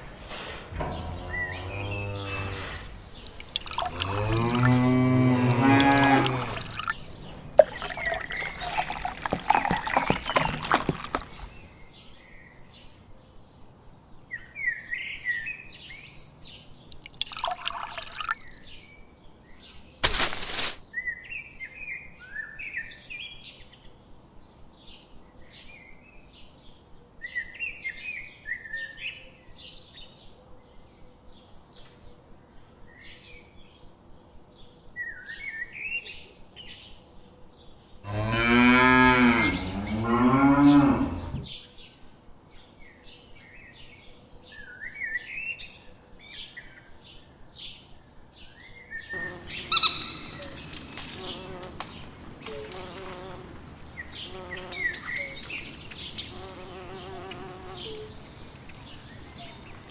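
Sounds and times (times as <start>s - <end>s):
small birds chirping: 0.0s - 11.8s, 39.2s - 41.6s, 49.2s - 59.9s
water pouring: 0.0s - 11.8s, 16.9s - 18.8s, 20.0s - 20.8s, 40.9s - 41.5s, 49.2s - 56.4s.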